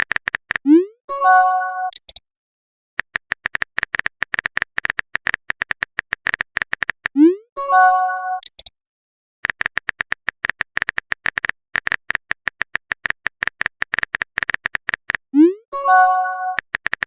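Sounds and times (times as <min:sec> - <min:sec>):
phone keyboard typing clicks: 0:00.0 - 0:00.7, 0:01.9 - 0:02.2, 0:03.0 - 0:07.2, 0:09.4 - 0:15.3, 0:16.4 - 0:17.0.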